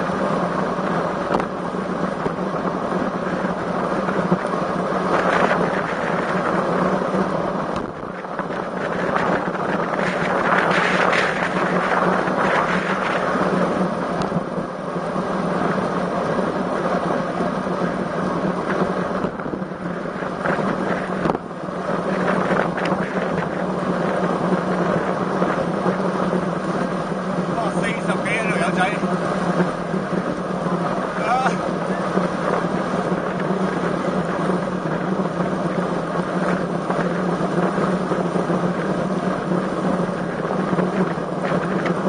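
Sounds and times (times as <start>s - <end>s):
wind rushing over microphone: 0.0s - 42.0s.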